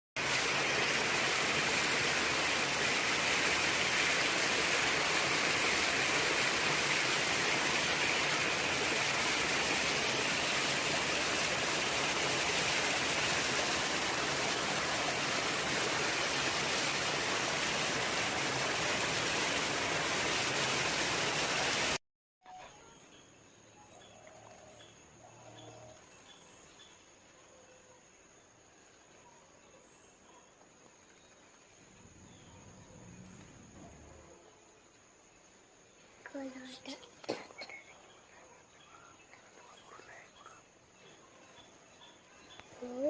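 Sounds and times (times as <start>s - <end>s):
falling water rushing: 0.2s - 22.0s.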